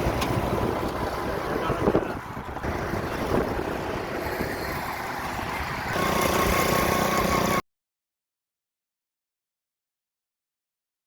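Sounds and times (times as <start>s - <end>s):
vehicle engine and road noise: 0.0s - 7.6s.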